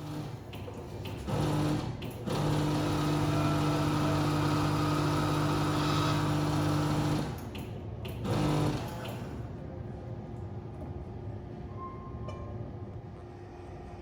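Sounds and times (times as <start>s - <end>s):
electric sewing machine running: 0.0s - 0.5s, 1.2s - 7.5s, 8.2s - 9.4s.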